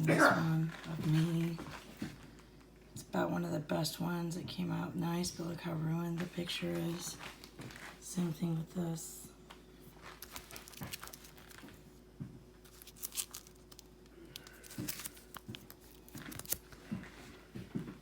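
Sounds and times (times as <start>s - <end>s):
stiff photo paper rustling: 9.9s - 12.0s, 12.6s - 17.4s.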